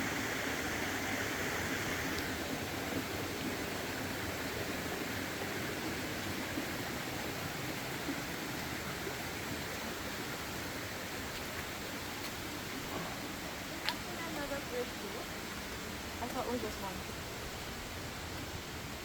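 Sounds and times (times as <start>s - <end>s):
faint clicks: 13.8s - 14.1s.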